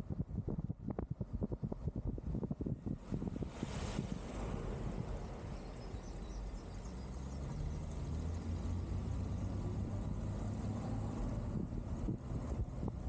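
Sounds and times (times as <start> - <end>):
wind buffeting the microphone: 0.0 - 6.4, 11.1 - 13.0
vehicle engine and road rumble: 0.0 - 13.0.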